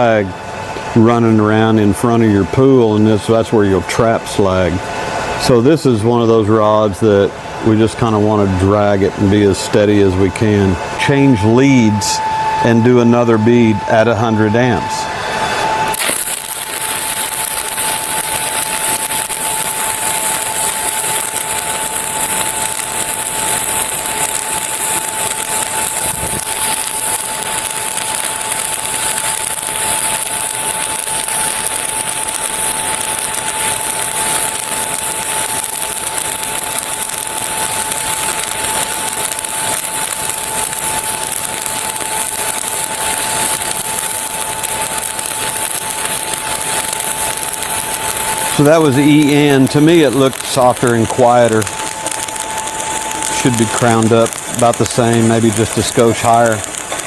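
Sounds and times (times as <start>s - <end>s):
arc welding crackle and hiss: 0.0s - 57.0s
steady high tone: 5.4s - 57.0s.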